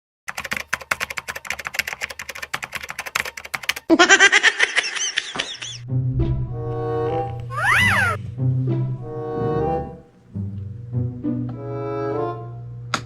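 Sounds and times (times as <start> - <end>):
rapid typing clicks: 0.3 - 3.9
music with bass line: 5.8 - 12.0
squeaky high calls: 7.4 - 8.2.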